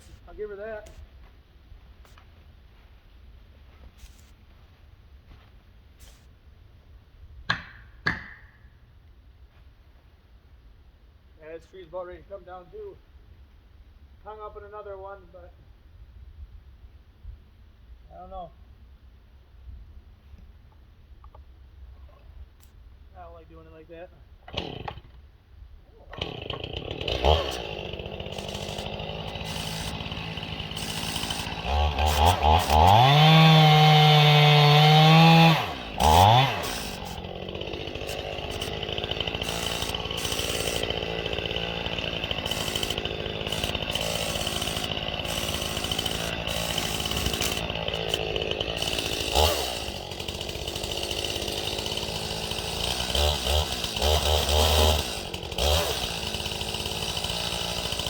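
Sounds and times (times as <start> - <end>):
chainsaw running and revving: 24.5 - 25.0, 26.1 - 58.0.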